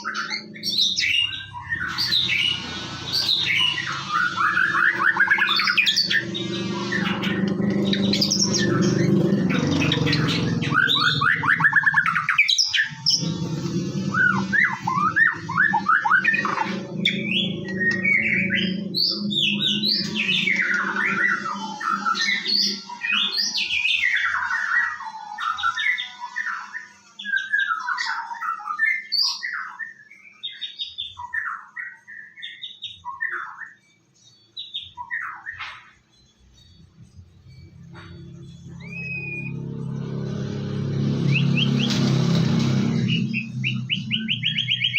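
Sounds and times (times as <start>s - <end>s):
songbird whistles and trills: 14.1s - 40.2s, 43.1s - 44.9s.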